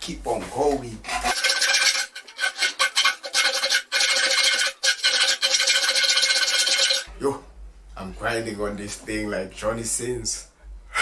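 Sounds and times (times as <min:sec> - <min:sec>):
cutting tool grinding metal: 0:01.2 - 0:07.1.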